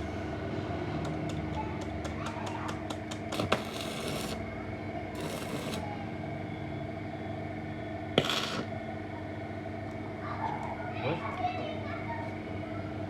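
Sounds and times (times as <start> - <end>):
steady hum: 2.8 - 10.2
short rasping scrapes: 3.3 - 4.4, 5.2 - 5.8, 8.2 - 8.7.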